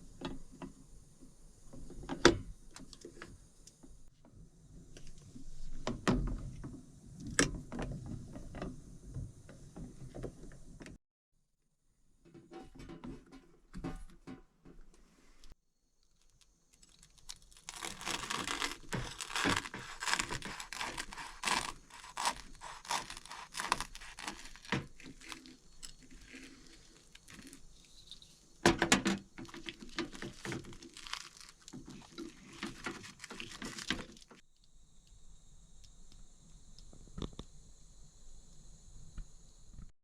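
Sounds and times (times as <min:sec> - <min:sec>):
plastic packaging crinkling: 0:16.0 - 0:28.2, 0:29.4 - 0:34.4.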